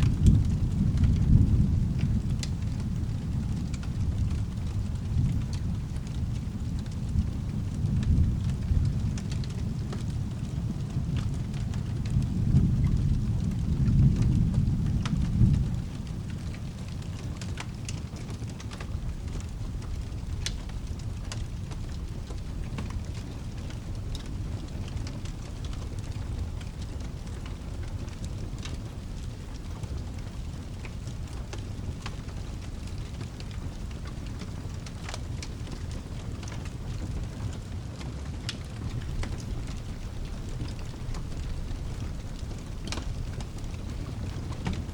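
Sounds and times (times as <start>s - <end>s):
rolling thunder: 0.0s - 17.8s, 18.4s - 37.8s, 38.6s - 44.9s
low steady rumble: 0.0s - 37.8s, 38.6s - 44.9s
steady rain: 0.0s - 44.9s
fireplace crackling: 16.0s - 44.9s.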